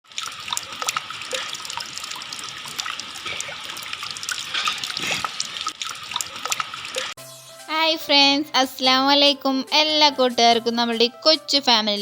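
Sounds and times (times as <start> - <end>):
water trickling and dripping: 0.0 - 7.2.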